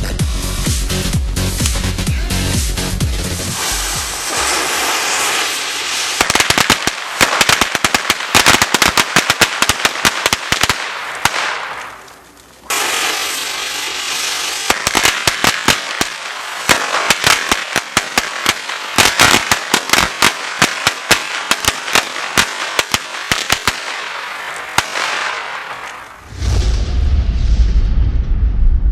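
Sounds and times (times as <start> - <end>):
firecrackers banging: 1.4 - 26.5
steady hiss: 3.4 - 26.2.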